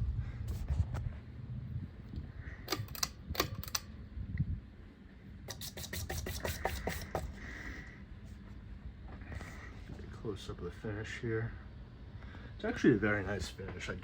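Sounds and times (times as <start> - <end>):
low steady hum: 0.0 - 14.0
sharp mechanical clicks: 2.7 - 3.9.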